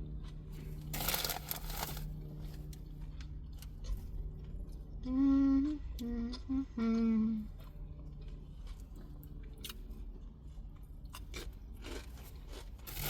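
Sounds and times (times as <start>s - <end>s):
woman humming while eating: 5.0s - 7.6s.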